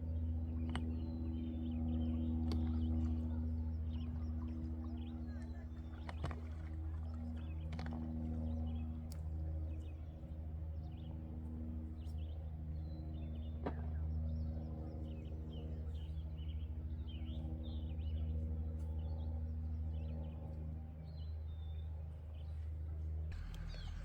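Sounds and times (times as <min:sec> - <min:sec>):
low hum: 0:00.0 - 0:14.8, 0:23.2 - 0:24.0
small birds chirping: 0:23.3 - 0:24.0.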